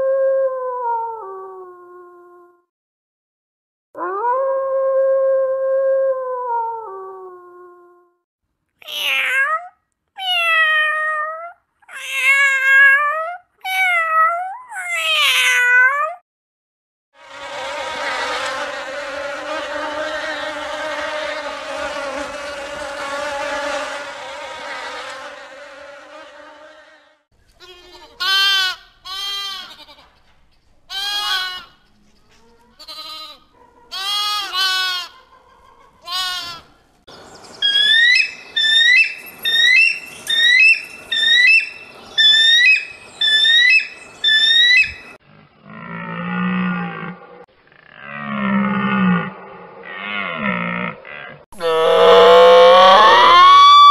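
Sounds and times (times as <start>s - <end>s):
honeybee buzzing: 17.2s - 27.2s
lamb bleating: 27.6s - 30.1s, 30.9s - 31.7s, 32.8s - 35.2s, 36.0s - 36.7s
wolf howling: 51.6s - 53.9s.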